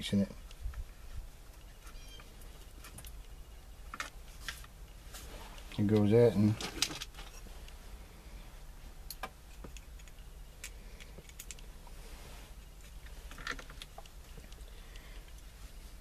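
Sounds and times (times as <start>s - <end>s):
faint low hum: 0.0s - 16.0s
small parts clicking and tapping: 9.1s - 11.7s, 12.8s - 15.5s.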